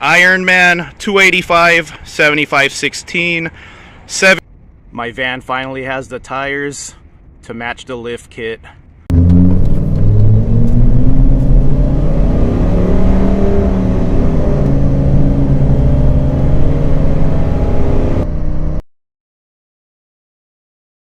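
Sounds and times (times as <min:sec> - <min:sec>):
van engine accelerating: 0:09.1 - 0:18.8.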